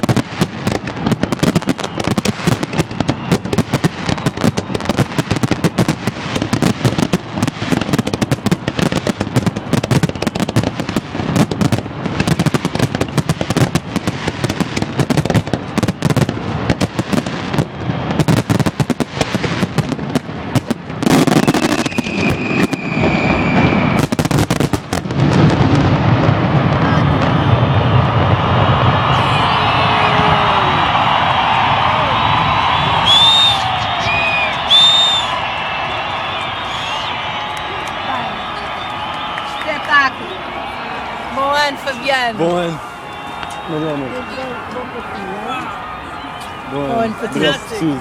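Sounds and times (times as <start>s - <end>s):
fireworks bangs and crackling: 0.0s - 48.0s
high steady whistle: 1.2s - 5.0s, 21.3s - 24.2s, 28.9s - 47.9s.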